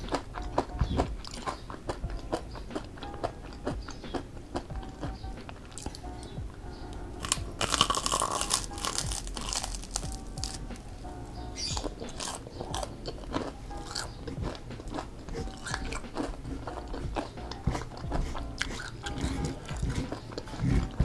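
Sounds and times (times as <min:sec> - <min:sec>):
crunchy chewing: 0:00.0 - 0:21.0
biting into crispy food: 0:07.2 - 0:10.8, 0:11.6 - 0:21.0.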